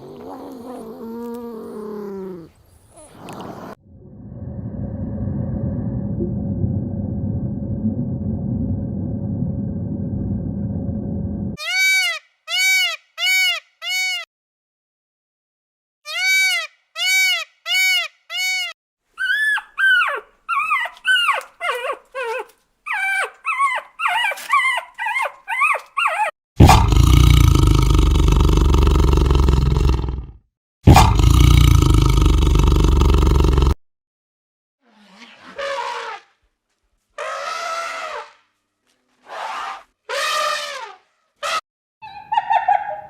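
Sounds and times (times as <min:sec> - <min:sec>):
dog whimpering and yelping: 0:00.0 - 0:03.8, 0:19.2 - 0:26.4
low rumbling noise: 0:03.8 - 0:11.6
loud roar: 0:26.6 - 0:30.2.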